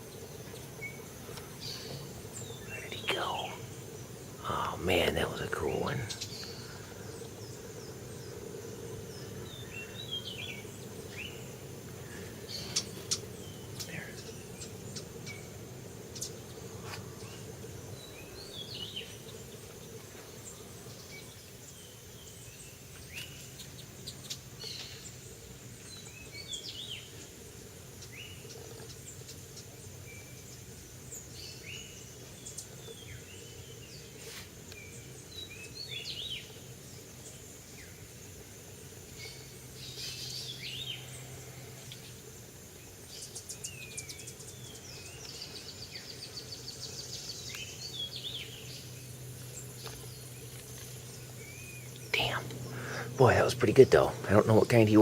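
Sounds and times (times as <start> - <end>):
birds chirping and whistling: 0.0 - 27.3, 39.1 - 42.2, 43.0 - 55.0
low background hum: 0.0 - 55.0.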